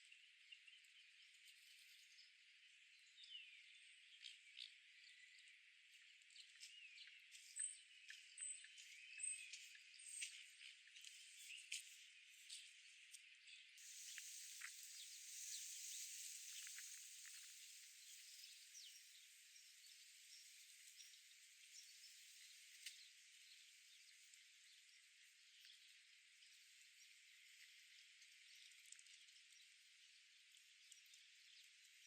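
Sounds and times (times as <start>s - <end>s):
faint chirps: 13.8s - 24.4s
faint outdoor hiss: 13.8s - 28.6s.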